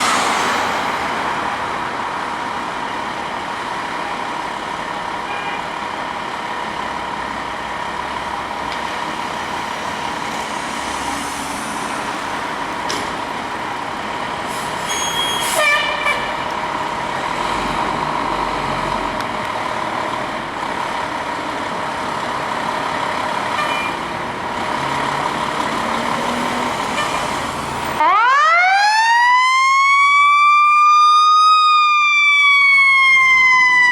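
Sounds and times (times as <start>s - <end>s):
street traffic hum: 0.0s - 33.9s
brief squeal: 14.5s - 15.9s
fire truck siren wailing: 26.4s - 33.9s.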